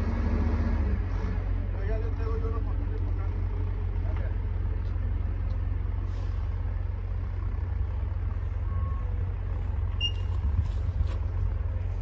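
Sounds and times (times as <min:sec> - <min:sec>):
diesel truck engine idling: 0:00.0 - 0:12.0
short high beep: 0:10.0 - 0:10.3.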